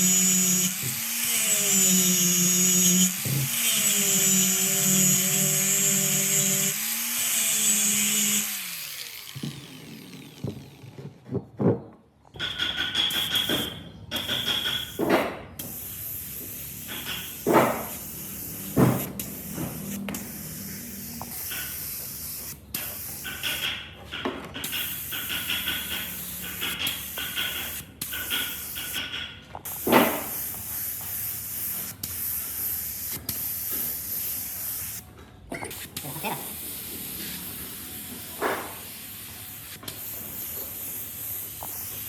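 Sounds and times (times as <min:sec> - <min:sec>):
compressed air spray hissing: 0:15.0 - 0:23.8, 0:24.6 - 0:35.0, 0:35.6 - 0:42.0.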